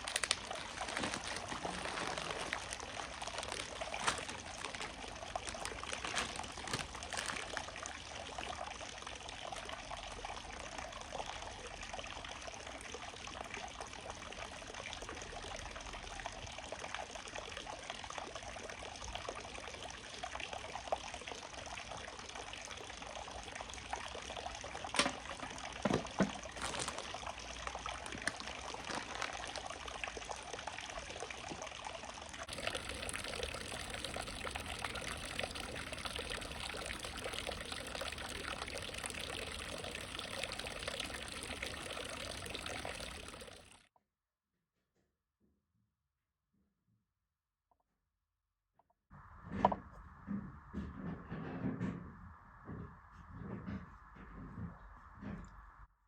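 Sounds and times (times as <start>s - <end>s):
running water trickling: 0.0s - 43.8s.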